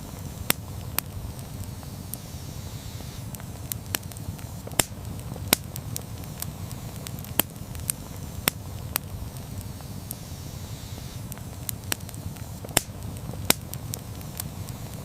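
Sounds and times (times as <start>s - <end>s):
campfire flames rumbling: 0.0s - 15.0s
fire crackling and popping: 0.0s - 15.0s.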